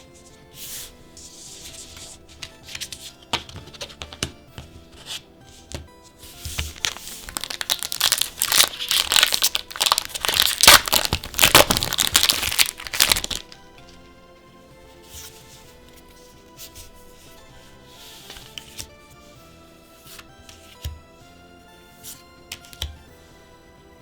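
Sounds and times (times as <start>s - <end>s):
wrapper crinkling and tearing: 6.7s - 13.6s.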